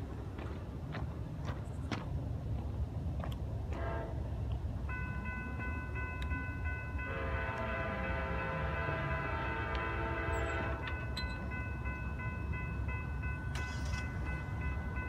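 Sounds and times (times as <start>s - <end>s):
train rumbling: 0.0s - 15.0s
locomotive air horn: 3.7s - 4.3s, 7.0s - 10.9s.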